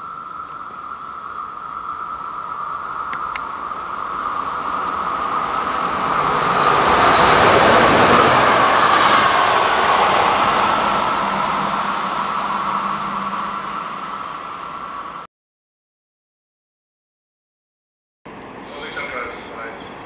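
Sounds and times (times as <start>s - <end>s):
wheels rolling on rails: 0.0s - 15.2s
electric locomotive whine: 0.0s - 15.3s, 18.3s - 20.0s.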